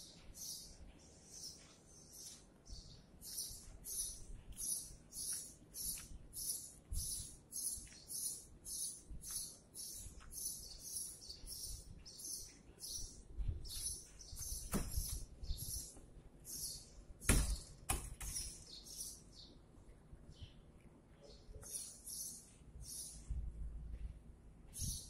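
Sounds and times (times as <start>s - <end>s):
bird chirping: 0.0s - 19.6s, 20.3s - 23.4s, 24.7s - 25.0s
sharp knocks: 14.6s - 15.2s, 17.2s - 18.4s.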